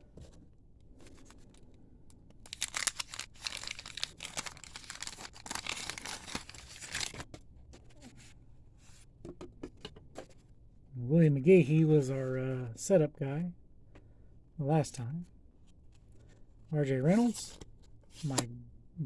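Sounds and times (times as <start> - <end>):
wrapper ripping and crinkling: 2.5 - 7.2.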